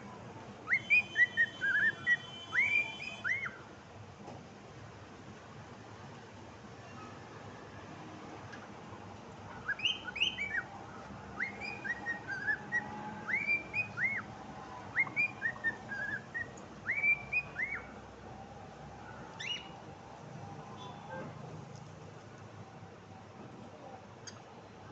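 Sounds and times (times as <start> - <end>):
cockatiel whistling: 0.7 - 3.6, 9.6 - 10.7, 11.4 - 14.3, 14.9 - 17.9, 19.4 - 19.7.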